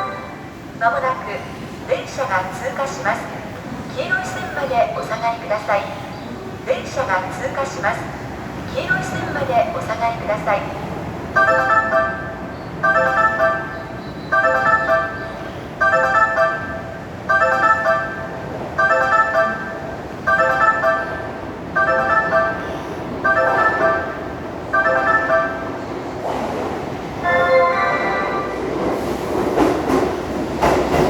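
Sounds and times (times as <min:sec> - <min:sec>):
electronic warning chime: 0:23.3 - 0:25.7.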